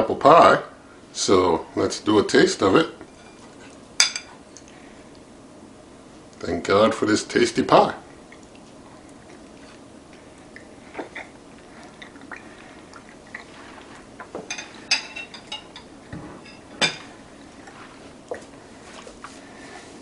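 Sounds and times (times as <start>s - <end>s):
person chewing: 8.3s - 14.3s.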